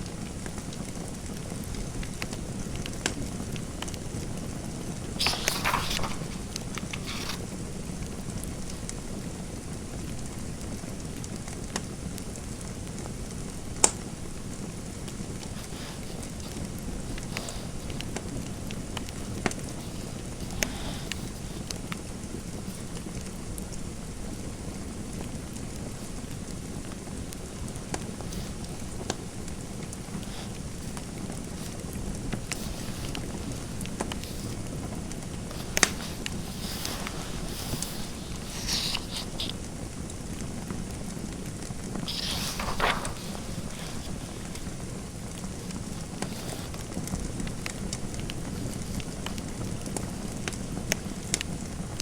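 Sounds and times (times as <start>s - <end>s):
fireplace fire hissing: 0.0s - 52.0s
fire popping: 13.7s - 23.6s, 24.8s - 51.5s.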